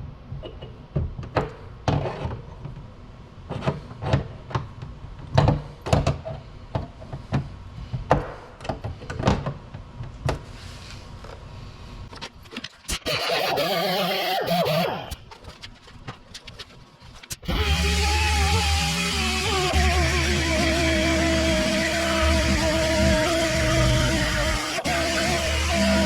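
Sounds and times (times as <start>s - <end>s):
handheld power tool running: 12.9s - 15.2s, 17.3s - 26.0s.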